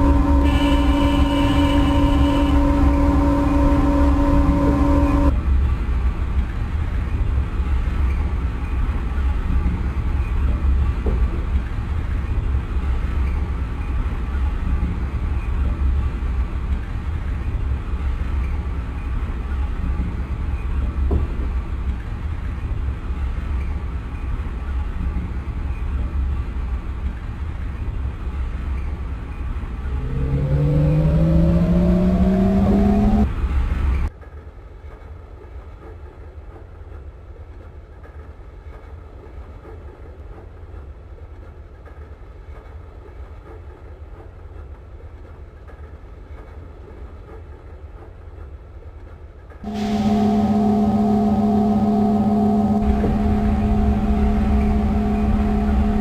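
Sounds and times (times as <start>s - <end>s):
rising traction motor whine: 0.0s - 5.3s, 29.7s - 33.3s, 49.6s - 56.0s
steady motor tone: 0.0s - 5.3s, 29.8s - 33.3s, 49.7s - 56.0s
train wheels rumbling on rails: 0.0s - 56.0s.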